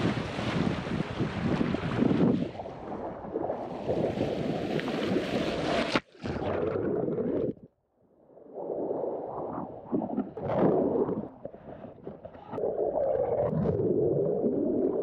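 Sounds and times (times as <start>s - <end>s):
wind buffeting microphone: 0.0s - 5.4s
sea water rushing: 0.0s - 7.5s.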